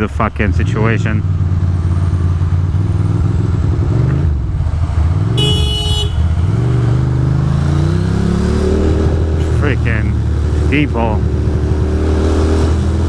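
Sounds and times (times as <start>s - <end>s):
motorcycle engine accelerating: 0.3s - 13.0s
vehicle horn: 5.4s - 6.5s.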